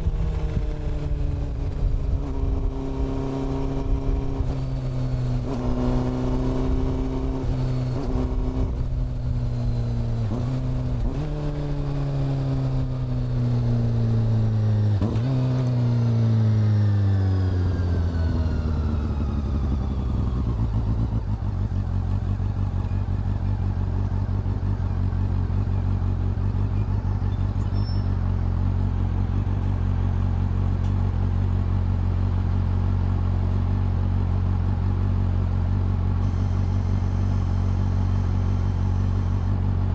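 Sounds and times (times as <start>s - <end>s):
motorcycle engine and exhaust: 0.0s - 39.9s
engine rev blips: 36.2s - 39.6s.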